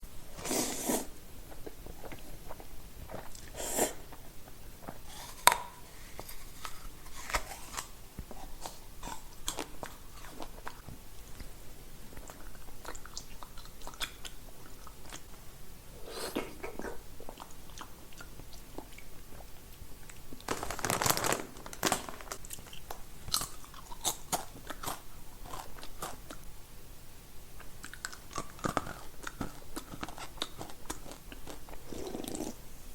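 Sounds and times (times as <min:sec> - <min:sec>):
crunchy bites and chewing: 0:04.8 - 0:10.9, 0:20.0 - 0:26.4, 0:27.6 - 0:32.5.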